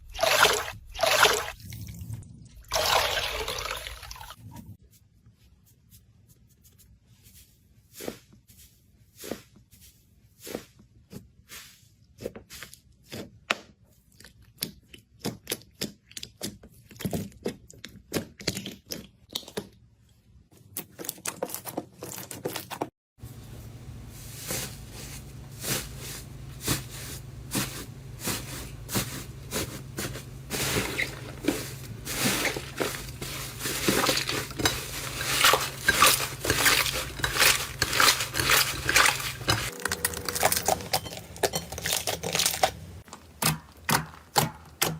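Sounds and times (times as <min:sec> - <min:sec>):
low steady hum: 0:23.2 - 0:43.2.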